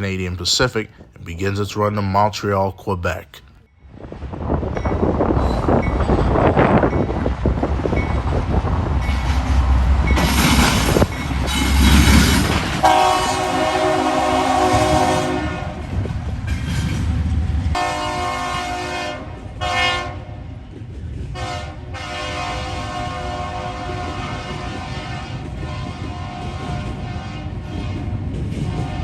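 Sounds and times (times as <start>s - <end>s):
rumbling roar of approaching train: 3.7s - 29.0s
wind on microphone: 3.8s - 29.0s
locomotive air horn blasts: 12.8s - 16.0s, 17.8s - 20.4s, 21.4s - 28.1s.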